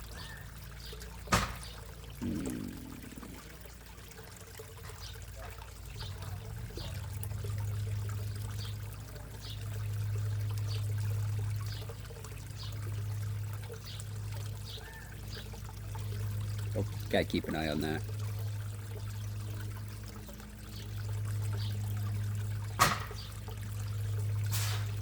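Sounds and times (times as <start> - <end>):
pond water trickling: 0.0 - 25.0.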